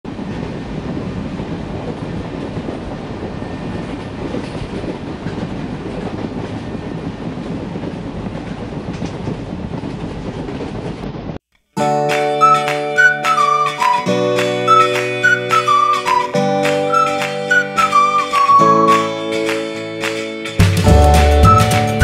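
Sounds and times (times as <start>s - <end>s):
train wheels rumbling on rails: 0.1s - 11.4s.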